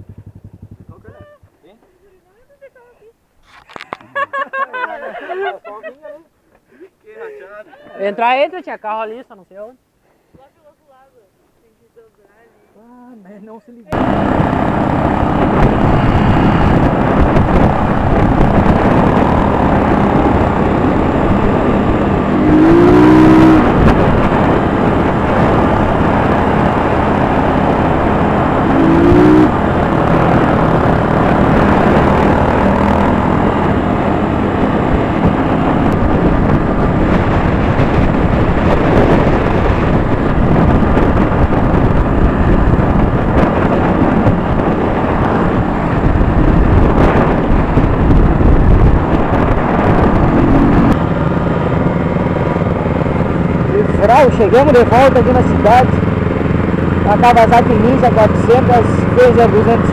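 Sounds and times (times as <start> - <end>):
motorcycle engine: 0.0 - 1.9, 13.9 - 59.9
wind rush on microphone: 13.9 - 59.9.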